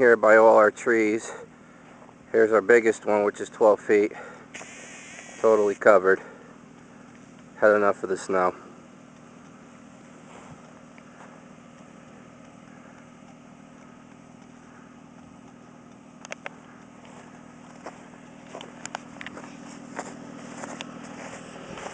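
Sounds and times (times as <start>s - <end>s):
engine humming: 0.0s - 21.9s
sharp clicks: 4.5s - 5.8s, 10.6s - 17.1s.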